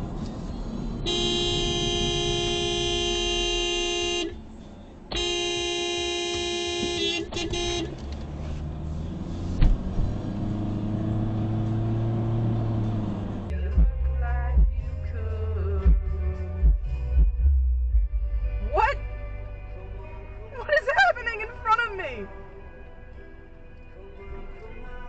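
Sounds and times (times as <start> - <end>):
low vehicle hum: 0.0 - 25.0
car horn: 1.0 - 4.5, 5.1 - 8.1
thud: 9.6 - 9.9.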